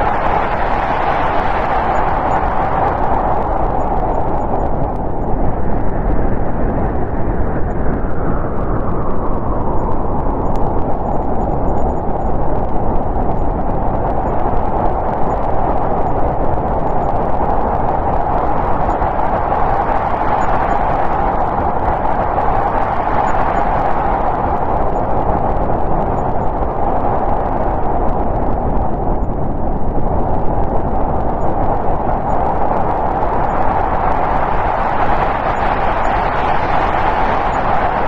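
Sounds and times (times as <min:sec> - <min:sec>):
wind blowing loudly: 0:12.7 - 0:38.0.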